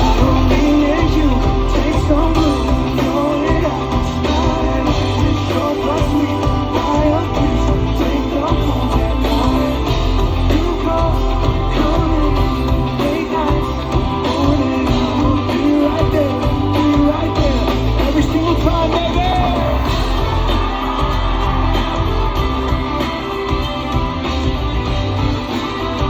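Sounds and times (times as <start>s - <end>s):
person singing: 0.0s - 24.6s
pop band playing live: 0.0s - 26.0s.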